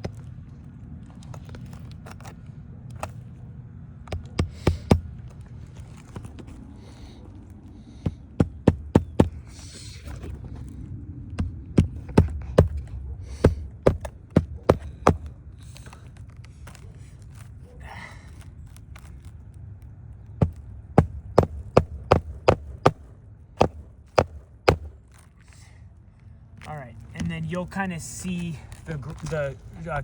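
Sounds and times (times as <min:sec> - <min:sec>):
shingle scraping: 0:00.0 - 0:30.0
hammer striking roofing nails: 0:04.1 - 0:05.3, 0:07.9 - 0:09.6, 0:11.4 - 0:15.8, 0:20.4 - 0:25.2.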